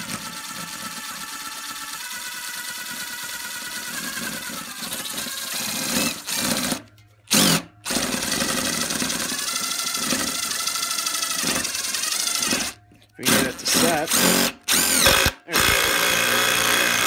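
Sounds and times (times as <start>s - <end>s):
impact driver hammering screw into wood: 12.4s - 17.0s.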